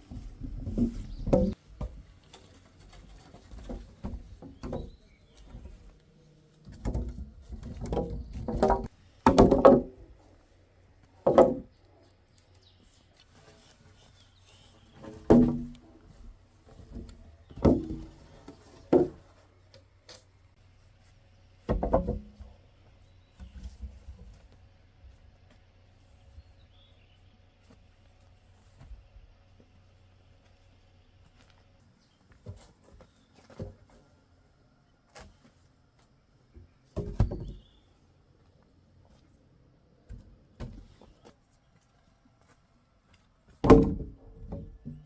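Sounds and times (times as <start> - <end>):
knocks and thuds from building work: 0.0 - 2.1, 3.3 - 5.8, 6.6 - 10.1, 11.2 - 11.7, 15.0 - 16.2, 16.8 - 18.2, 21.7 - 22.6, 36.9 - 37.8, 43.6 - 45.0.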